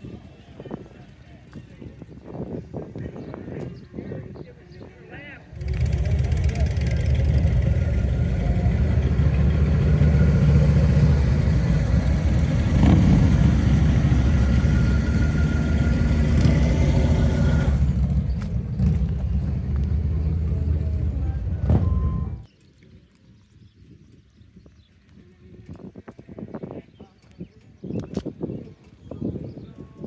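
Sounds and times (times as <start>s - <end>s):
car engine low rumble: 5.6s - 22.5s.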